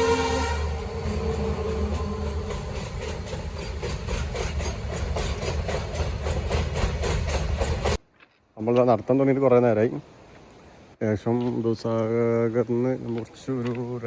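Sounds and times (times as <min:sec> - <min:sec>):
train rumble: 0:00.0 - 0:08.0
train wheels clacking on rail joints: 0:00.9 - 0:08.0.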